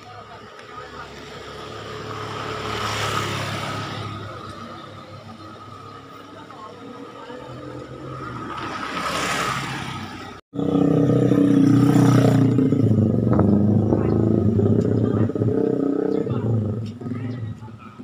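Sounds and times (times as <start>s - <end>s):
vehicle passing rush: 0.1s - 18.0s
off-road vehicle engine running: 10.5s - 18.0s.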